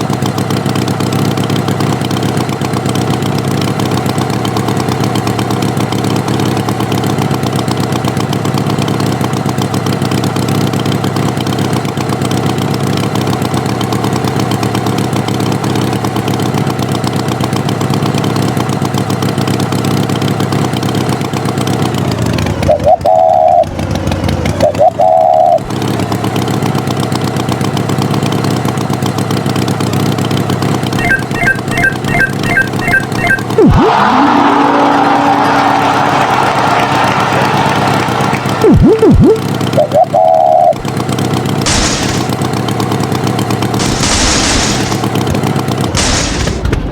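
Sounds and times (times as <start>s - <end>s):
tractor engine running: 0.0s - 46.9s
short loud high tones: 31.0s - 35.3s, 38.6s - 40.7s.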